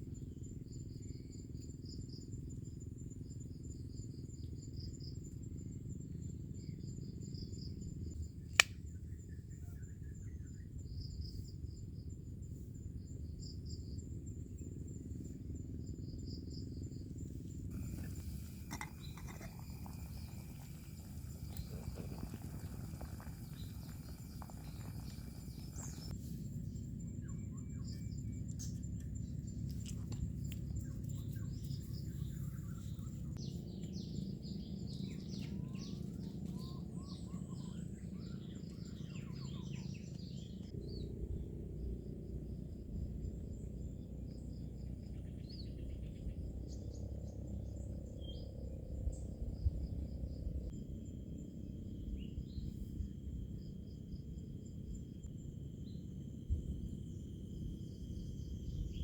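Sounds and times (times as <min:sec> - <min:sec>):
steady insect tone: 0:00.0 - 0:59.0
insects trilling: 0:10.5 - 0:26.2.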